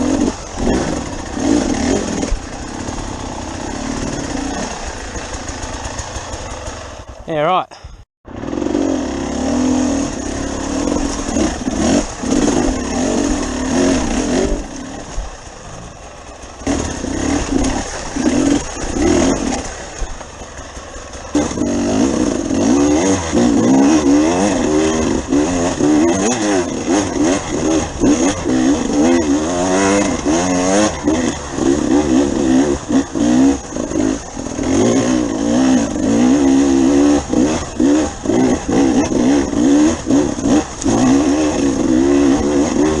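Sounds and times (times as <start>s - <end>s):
dirt bike engine revving: 0.0s - 7.5s, 8.3s - 43.0s.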